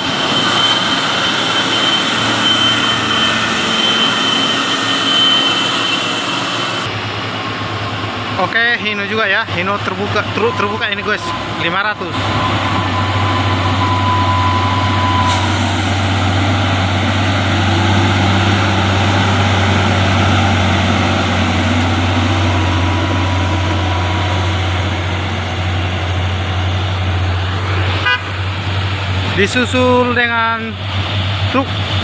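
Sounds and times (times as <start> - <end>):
truck diesel engine under load: 0.0 - 32.0.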